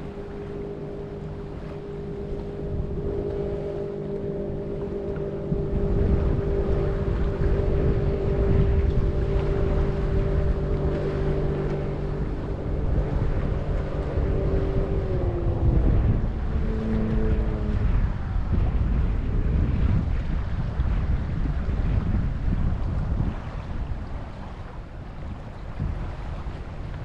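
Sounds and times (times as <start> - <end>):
engine running: 0.0 - 22.0
wind buffeting microphone: 0.0 - 27.0.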